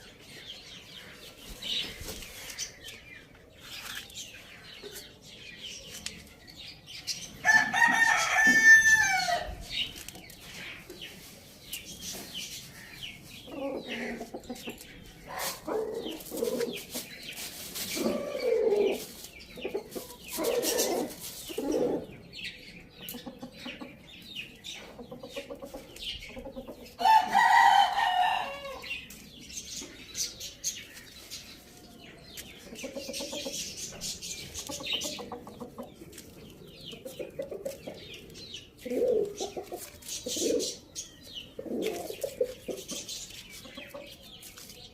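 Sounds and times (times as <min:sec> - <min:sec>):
chickens clucking: 0:09.8 - 0:44.9.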